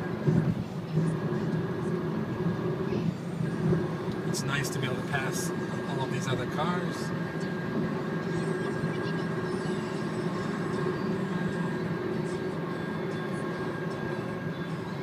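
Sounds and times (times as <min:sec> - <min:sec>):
road and wind noise in car: 0:00.0 - 0:15.0.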